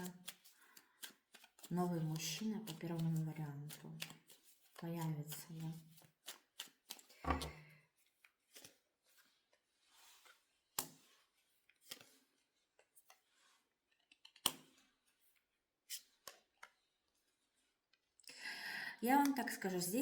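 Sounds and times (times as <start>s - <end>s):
cards being shuffled: 0.0s - 7.6s, 8.3s - 16.8s.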